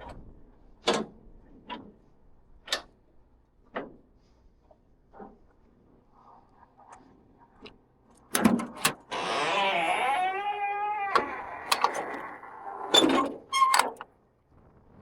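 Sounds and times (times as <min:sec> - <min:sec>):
electric motor whining: 0:09.1 - 0:13.2.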